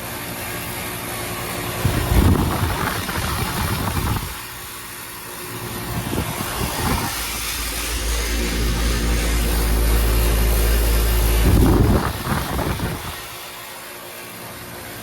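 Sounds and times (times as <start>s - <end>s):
heat pump compressor and fan hum: 0.0s - 15.0s
irregular low rumbling: 5.9s - 13.3s.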